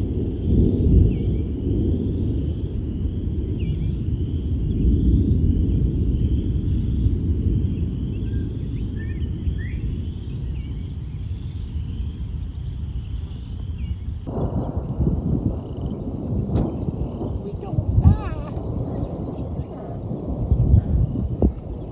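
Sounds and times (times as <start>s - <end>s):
wind rumbling on microphone: 0.0s - 21.9s
birds chirping and singing: 15.6s - 21.9s.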